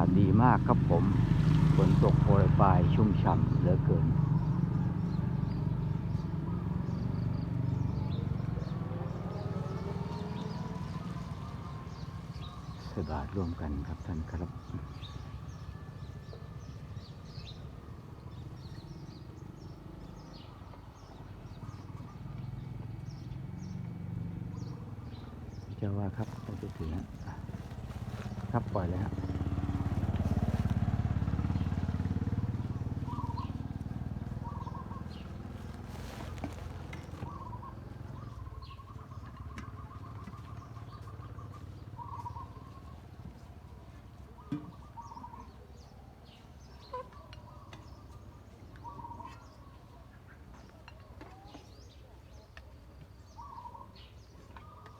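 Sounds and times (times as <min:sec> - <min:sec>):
motorcycle engine rumble: 0:00.0 - 0:20.8, 0:21.6 - 0:45.0
small birds chirping: 0:00.0 - 0:54.9
steady low rumble: 0:26.0 - 0:37.4
bird trilling: 0:34.3 - 0:42.9.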